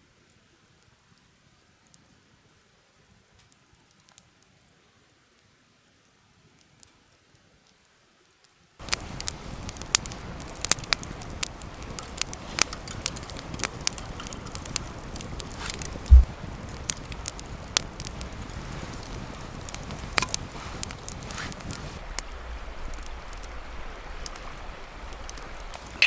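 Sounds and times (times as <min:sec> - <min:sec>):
campfire crackling and popping: 0:03.2 - 0:04.7, 0:06.1 - 0:07.9, 0:08.8 - 0:26.0
faint ticks: 0:08.8 - 0:18.3.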